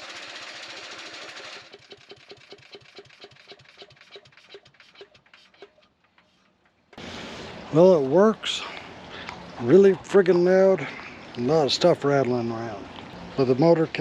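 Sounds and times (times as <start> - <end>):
wood chipper engine running: 0.0 - 4.4.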